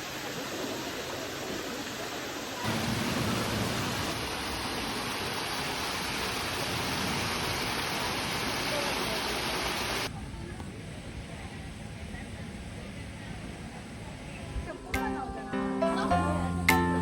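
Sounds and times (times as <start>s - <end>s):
running water rushing: 0.0s - 10.1s.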